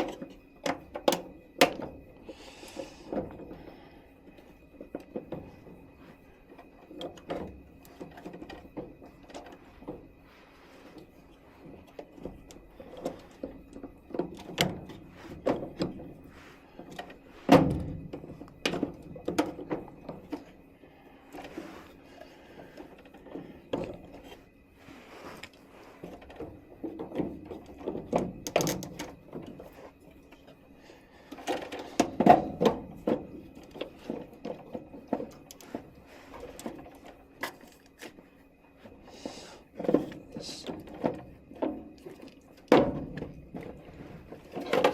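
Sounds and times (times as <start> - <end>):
knocks and clattering of plastic fittings: 11.6 - 20.5, 26.0 - 29.8, 31.3 - 38.2, 39.8 - 44.9.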